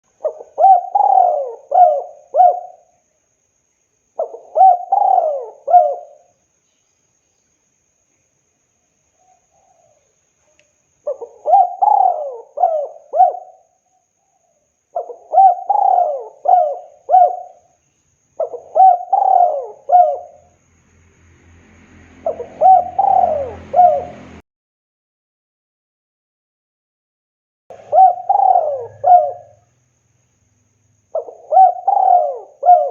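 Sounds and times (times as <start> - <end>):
dove cooing: 0.2 - 2.9, 4.2 - 6.3, 11.0 - 13.7, 15.0 - 17.7, 18.4 - 20.5, 22.2 - 24.4, 27.7 - 29.7, 31.1 - 32.9
low hum and hiss: 27.7 - 31.8.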